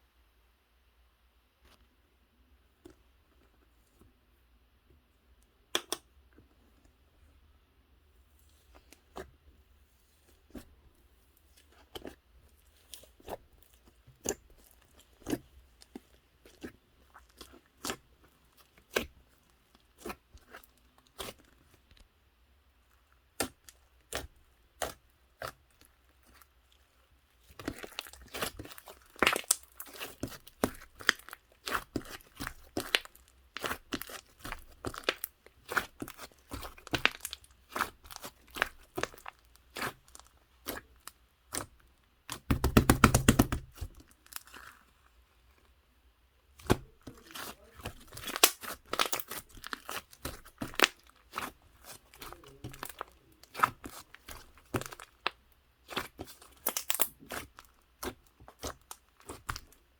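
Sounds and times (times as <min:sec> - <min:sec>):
slime squeezed with sticky pops: 0:27.4 - 0:44.6, 0:46.5 - 0:59.7.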